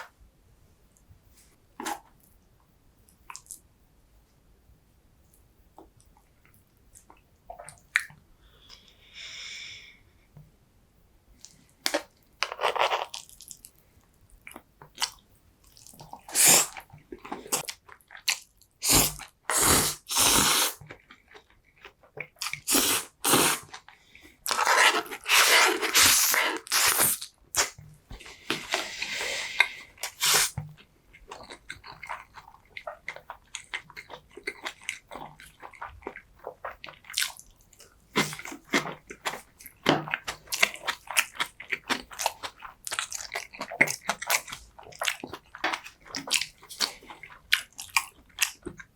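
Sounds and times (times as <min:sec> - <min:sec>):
person chewing food: 0:14.4 - 0:48.9.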